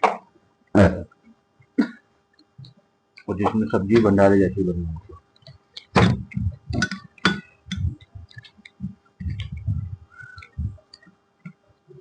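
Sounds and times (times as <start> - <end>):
chewing thuds: 5.1 - 11.6.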